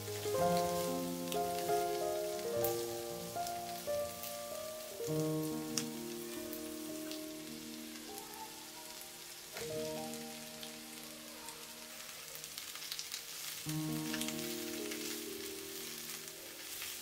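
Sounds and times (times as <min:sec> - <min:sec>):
background music of held chords: 0:00.0 - 0:08.0
vegetables sizzling in a wok: 0:00.0 - 0:17.0.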